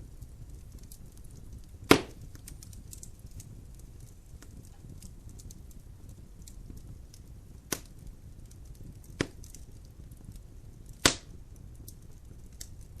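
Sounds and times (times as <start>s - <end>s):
fire rumbling: 0.0s - 13.0s
soft crackles: 0.0s - 13.0s
logs snapping with sharp pops: 1.9s - 2.2s, 7.7s - 8.0s, 9.1s - 9.6s, 11.0s - 11.4s.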